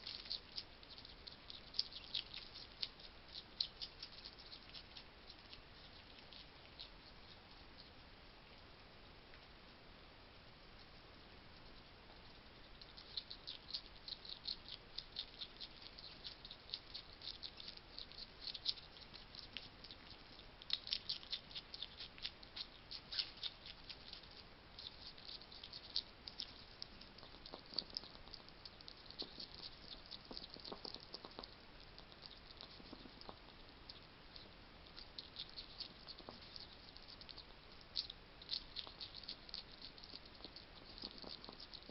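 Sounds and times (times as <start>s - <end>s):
hedgehog crunching dry food: 0.0s - 8.7s, 11.5s - 41.9s.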